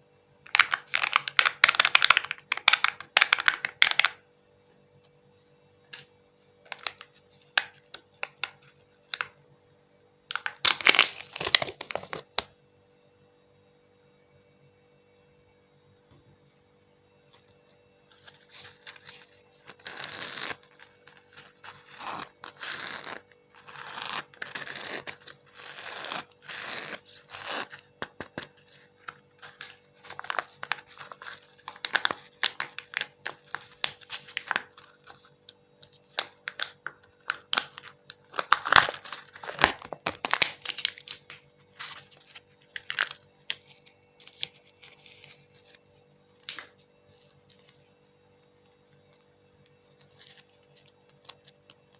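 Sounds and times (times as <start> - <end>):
faint steady hum: 0.0 - 51.9
candy wrappers crinkling: 0.5 - 4.2, 6.7 - 9.3, 10.3 - 12.5, 18.1 - 48.0, 49.9 - 51.9.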